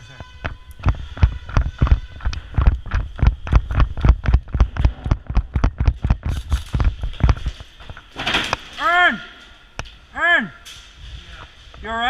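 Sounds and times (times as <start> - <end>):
running footsteps: 0.0 - 8.2
thumps on camera microphone: 0.4 - 8.6.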